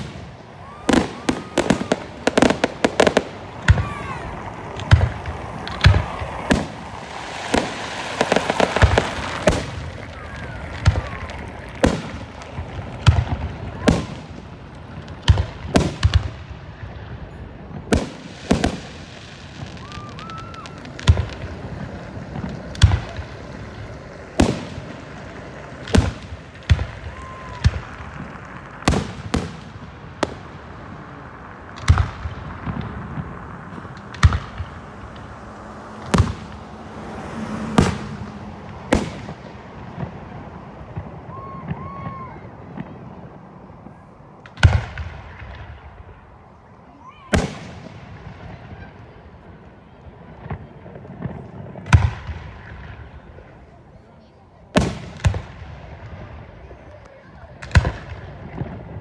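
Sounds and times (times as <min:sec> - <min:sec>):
hiss and crackle: 0:00.0 - 0:17.0
firework shells booming: 0:00.0 - 0:46.3, 0:47.3 - 0:49.5, 0:54.7 - 0:56.8.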